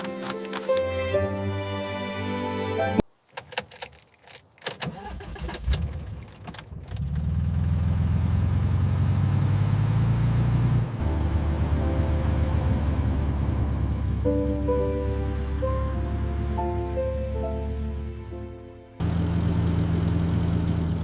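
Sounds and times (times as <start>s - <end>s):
keys jingling: 3.2s - 4.8s, 5.9s - 6.5s
van engine starting and running: 4.6s - 21.0s.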